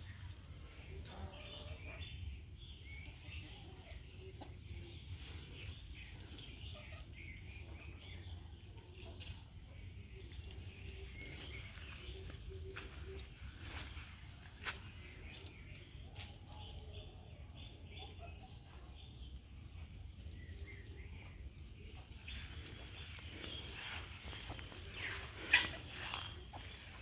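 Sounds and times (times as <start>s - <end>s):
poultry clucking: 22.0s - 27.0s.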